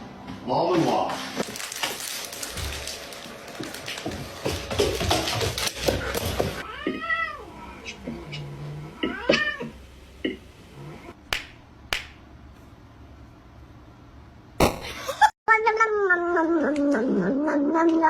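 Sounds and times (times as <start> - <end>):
cat meowing: 6.6 - 7.8.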